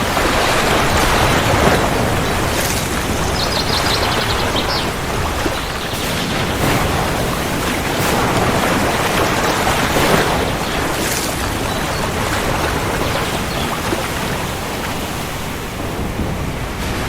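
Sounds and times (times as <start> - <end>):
heavy rainfall: 0.0 - 17.0.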